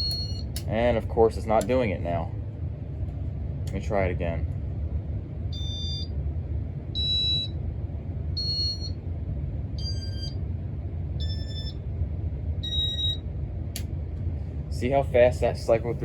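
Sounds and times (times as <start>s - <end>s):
short electronic beeps: 0.0s - 0.5s, 12.6s - 13.2s
ceiling fan humming: 0.0s - 16.0s.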